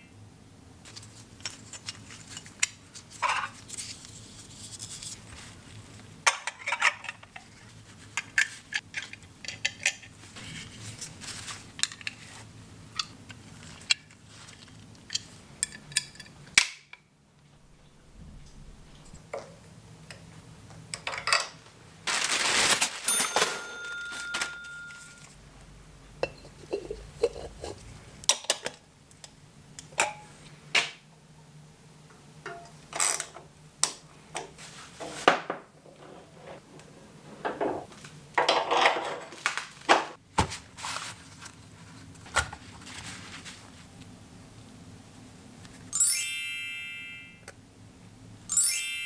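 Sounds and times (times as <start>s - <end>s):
metal parts and tools clinking: 23.0s - 25.3s.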